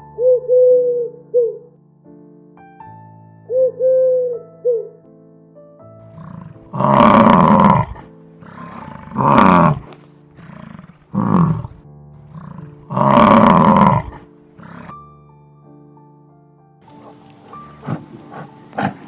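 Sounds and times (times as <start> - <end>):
soft background music: 0.0 - 19.0
bison bellowing: 6.1 - 15.0, 16.9 - 19.0
bison grunts: 6.1 - 15.0, 16.9 - 19.0.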